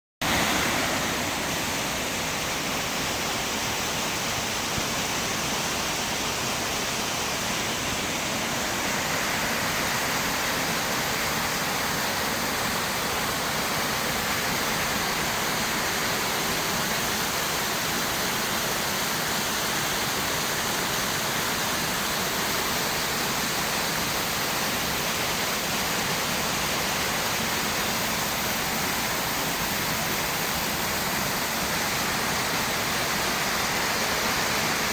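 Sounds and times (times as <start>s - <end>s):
waterfall rushing over rock: 0.2s - 34.9s.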